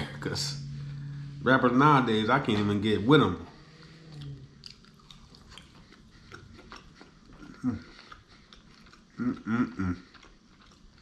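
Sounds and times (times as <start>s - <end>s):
person chewing food: 3.5s - 11.0s
person humming: 9.2s - 10.0s.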